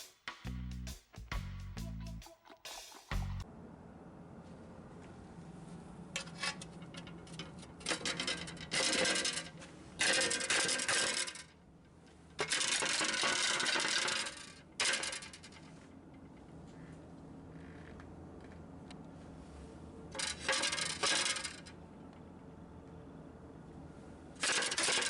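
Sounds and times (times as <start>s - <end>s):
metallic scraping from wheel: 6.2s - 11.5s, 20.1s - 21.8s, 24.4s - 25.0s.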